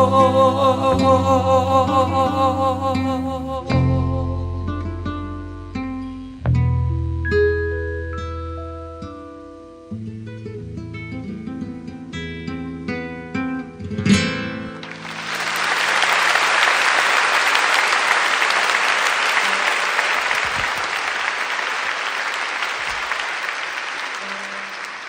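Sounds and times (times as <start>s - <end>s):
audience applauding: 14.8s - 25.0s.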